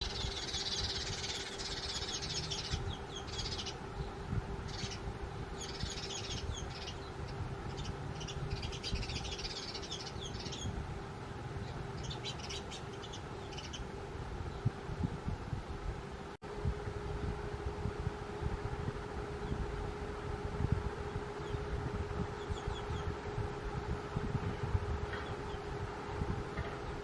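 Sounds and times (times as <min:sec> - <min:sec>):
sparrows chirping: 0:00.0 - 0:14.7, 0:21.0 - 0:23.4, 0:25.0 - 0:25.8
faint steady hum: 0:00.0 - 0:27.0.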